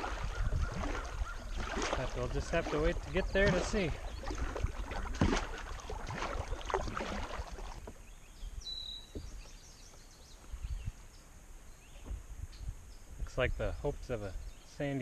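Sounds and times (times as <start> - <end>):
kayak paddle splashing in water: 0.0 - 8.2.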